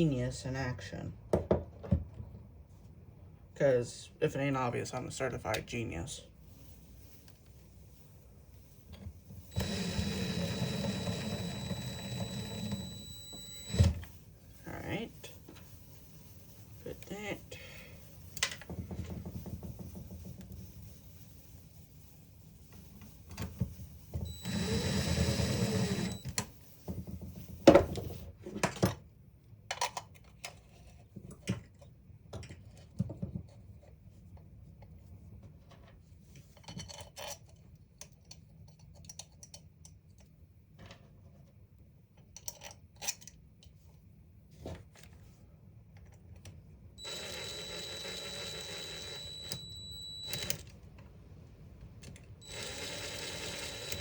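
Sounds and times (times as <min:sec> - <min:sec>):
small tool motor whining: 0:09.5 - 0:14.1, 0:24.2 - 0:26.4, 0:47.0 - 0:50.6, 0:52.4 - 0:54.0.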